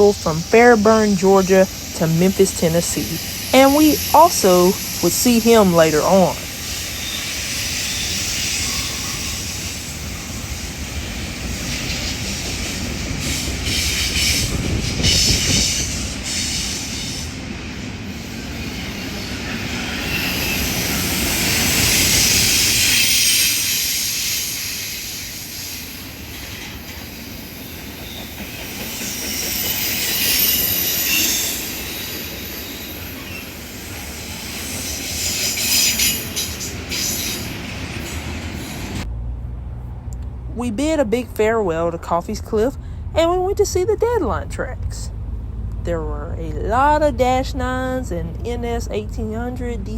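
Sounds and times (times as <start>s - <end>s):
steel wheels squealing on rails: 0.0s - 39.0s
freight train rolling past: 0.0s - 49.9s.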